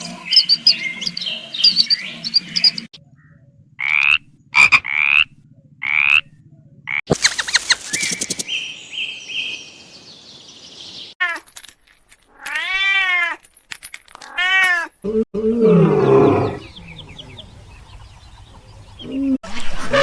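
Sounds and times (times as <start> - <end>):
animal clicks and chirps: 7.1 - 8.5.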